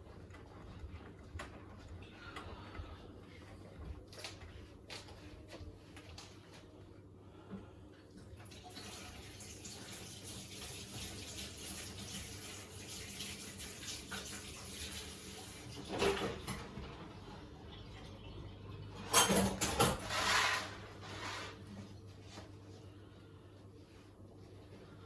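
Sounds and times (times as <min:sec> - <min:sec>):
water rushing into washing machine: 0:08.2 - 0:21.2.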